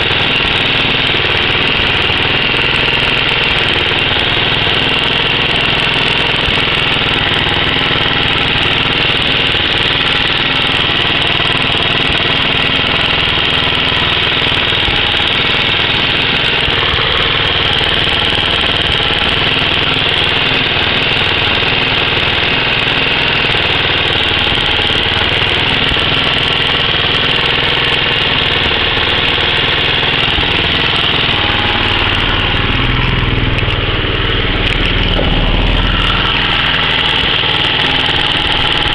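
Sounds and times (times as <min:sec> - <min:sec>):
car engine idling: 0:00.0 - 0:38.9
engine top end noise: 0:00.0 - 0:38.9.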